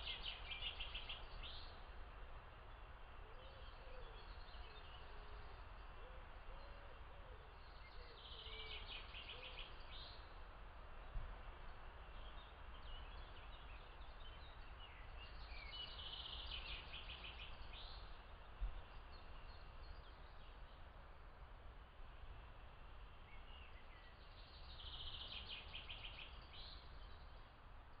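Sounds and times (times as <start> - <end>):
songbirds singing: 0.0 - 28.0
steady low background noise: 0.0 - 28.0.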